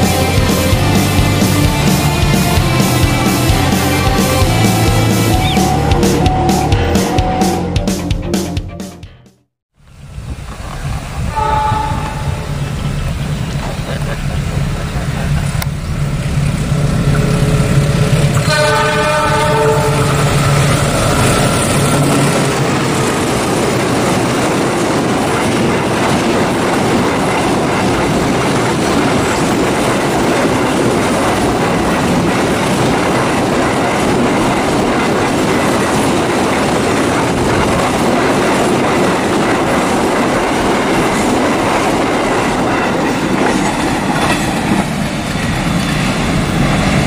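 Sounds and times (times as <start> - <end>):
diesel locomotive passing: 0.0 - 9.1, 9.8 - 47.0
wheels clacking on rail joints: 10.4 - 47.0.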